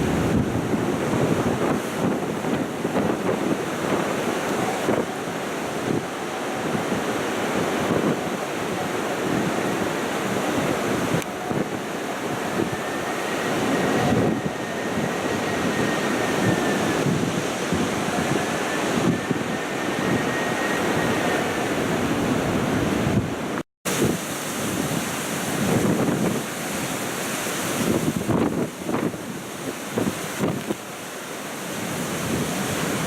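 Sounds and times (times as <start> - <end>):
faint high wind whistle: 0.0 - 30.8
storm wind buffeting microphone: 0.0 - 33.0.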